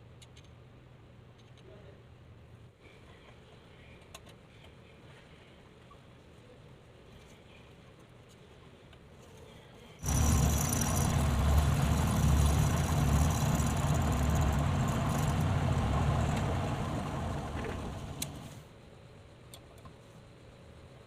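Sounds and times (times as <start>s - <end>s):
lathe electric motor humming: 10.0s - 18.6s.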